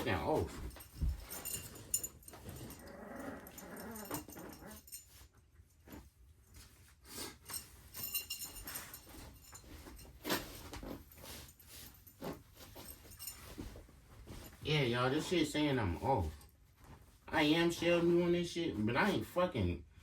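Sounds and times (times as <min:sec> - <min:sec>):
puppy whining and growling: 0:02.3 - 0:05.1.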